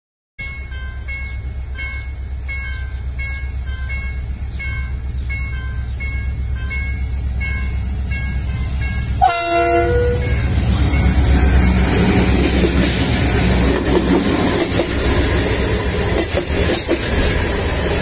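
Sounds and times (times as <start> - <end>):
chiming signal tone: 0.4 - 11.8
locomotive engine rumble: 0.4 - 18.0
multi-tone train horn blast: 9.2 - 10.5.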